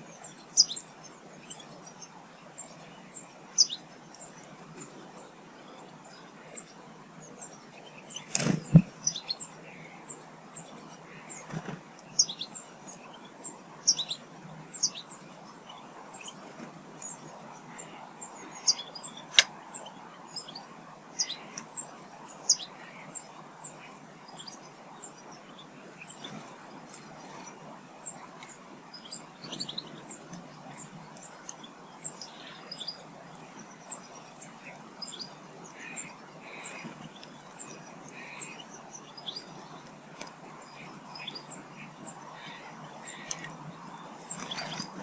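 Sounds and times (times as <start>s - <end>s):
songbirds chirping and twittering: 0.0s - 45.0s.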